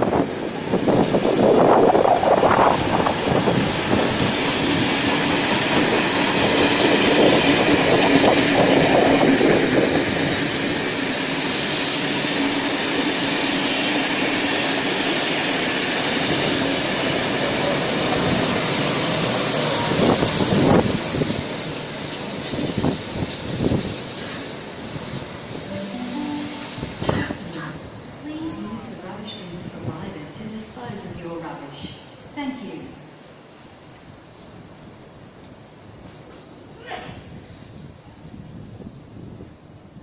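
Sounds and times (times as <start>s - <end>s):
train wheels rumbling on track: 0.0s - 25.7s.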